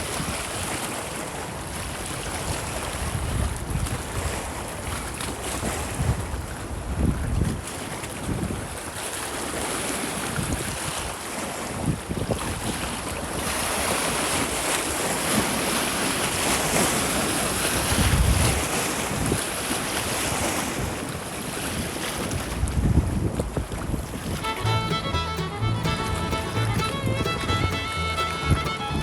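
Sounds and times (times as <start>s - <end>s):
wind buffeting microphone: 2.0s - 8.8s, 11.8s - 14.4s, 15.0s - 21.1s, 21.8s - 29.0s.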